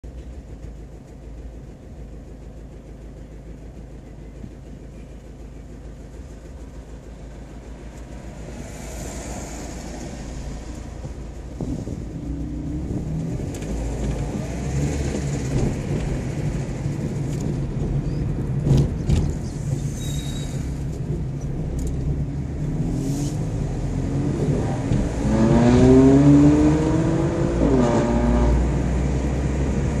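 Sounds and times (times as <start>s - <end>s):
car engine: 0.0s - 30.0s
road noise: 0.0s - 30.0s
engine accelerating hard: 7.0s - 19.8s, 20.8s - 30.0s.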